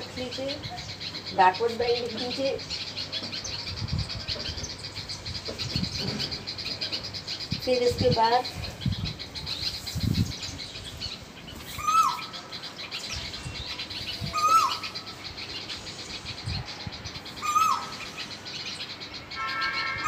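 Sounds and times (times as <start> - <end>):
small birds twittering: 0.0 - 20.0.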